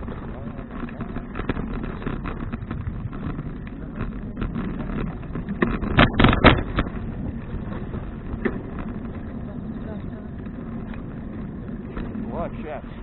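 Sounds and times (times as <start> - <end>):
road noise: 0.0 - 13.0
wind noise: 0.0 - 13.0
rattle of sharp knocks: 0.8 - 9.3.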